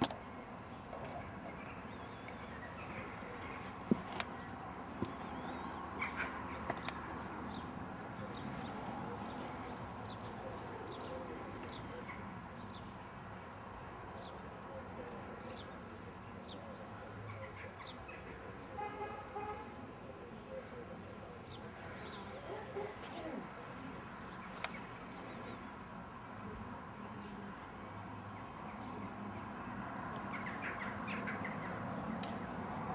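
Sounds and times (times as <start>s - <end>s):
small birds chirping: 0.0s - 13.1s, 20.1s - 32.9s
outdoor background hiss: 0.0s - 32.9s.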